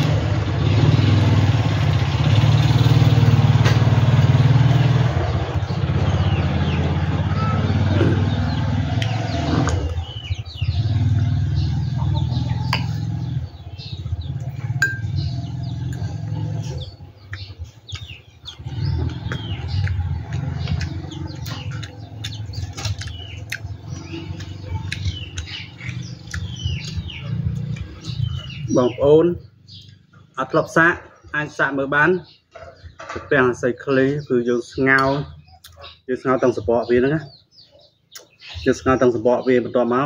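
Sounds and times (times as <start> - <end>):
low motor hum: 0.0 - 30.3
small birds chirping: 0.0 - 40.0.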